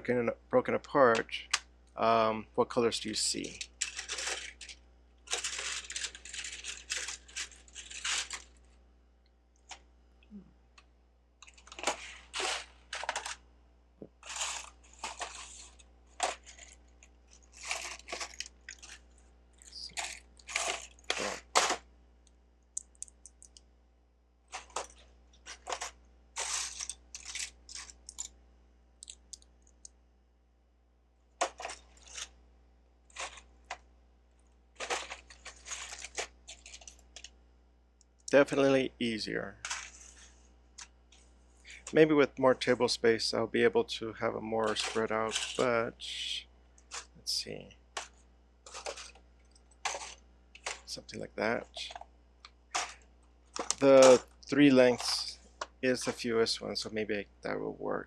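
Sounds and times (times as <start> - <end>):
plastic bricks clattering: 3.4 - 8.5.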